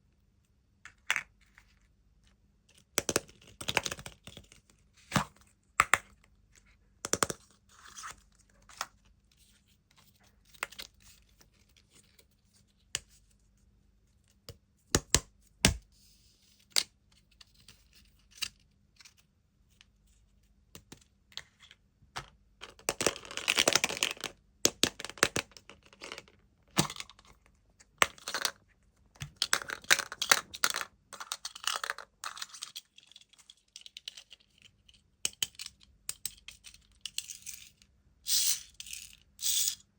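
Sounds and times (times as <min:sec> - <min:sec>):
taps and clicks on plastic toys: 0:07.0 - 0:07.4.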